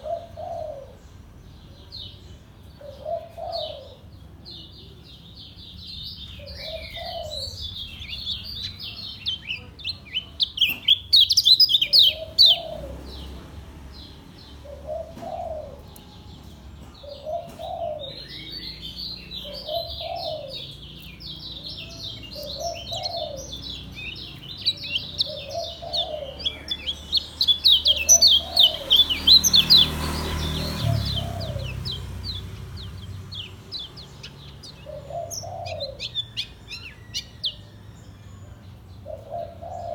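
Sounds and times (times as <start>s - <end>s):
low cooing call: 0.0s - 1.0s, 6.4s - 8.1s, 14.6s - 29.9s, 30.5s - 39.9s
bird singing rapid high chirps: 3.4s - 38.7s.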